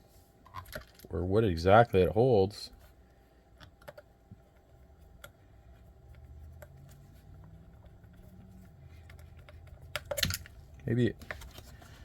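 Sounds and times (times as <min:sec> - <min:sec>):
low steady hum: 0:00.0 - 0:12.0
small plastic parts clicking: 0:08.9 - 0:11.6.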